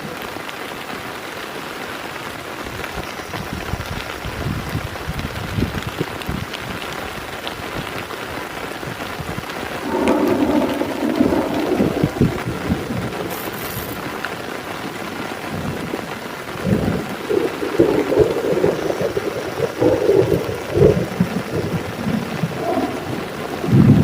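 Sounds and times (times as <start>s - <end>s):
heavy rain falling: 0.0s - 24.0s
thunder rumbling: 9.0s - 24.0s.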